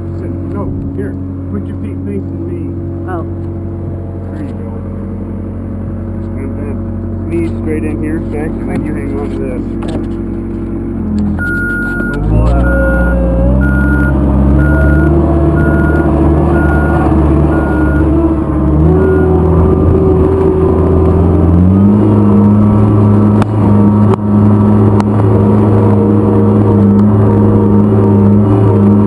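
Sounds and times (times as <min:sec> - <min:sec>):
heavy vehicle engine running: 0:00.0 - 0:29.0
warning beeper: 0:11.4 - 0:20.2.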